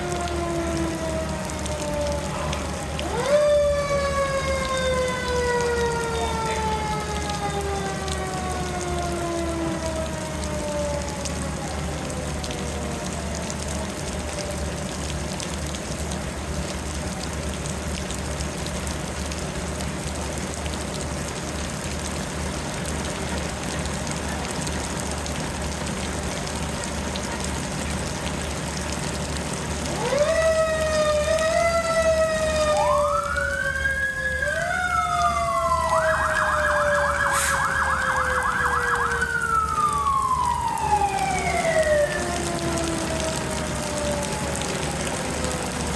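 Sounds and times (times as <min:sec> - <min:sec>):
electronic siren wailing: 0:00.0 - 0:14.7, 0:29.8 - 0:45.9
siren winding down: 0:00.0 - 0:14.7, 0:29.8 - 0:45.9
steady rain: 0:00.0 - 0:45.9.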